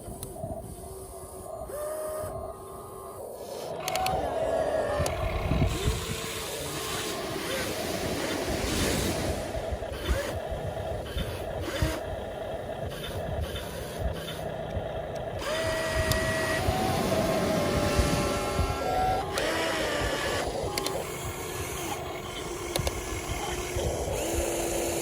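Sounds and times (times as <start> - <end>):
toy excavator motors whining: 0.0 - 25.0
small clicks: 3.2 - 7.1, 12.9 - 25.0.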